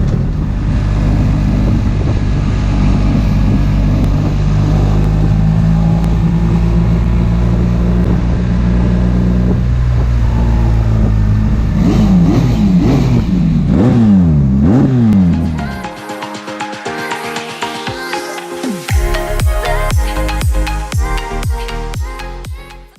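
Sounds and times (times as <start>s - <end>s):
motorcycle engine revving: 0.0s - 15.8s
electronic music: 15.0s - 22.9s.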